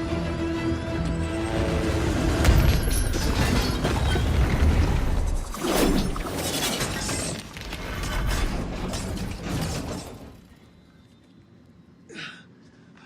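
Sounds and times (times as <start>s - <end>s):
glass breaking and shattering: 2.4s - 4.8s.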